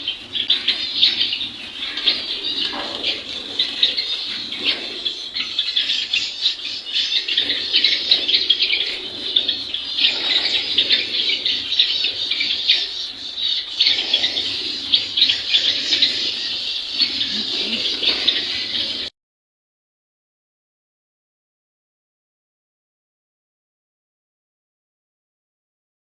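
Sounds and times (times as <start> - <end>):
caged birds chirping and squawking: 0.0 - 19.1.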